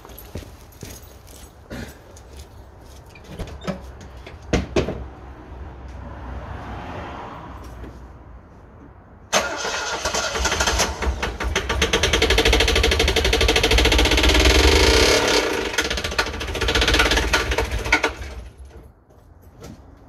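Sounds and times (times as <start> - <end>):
engine starter cranking: 9.3 - 18.7.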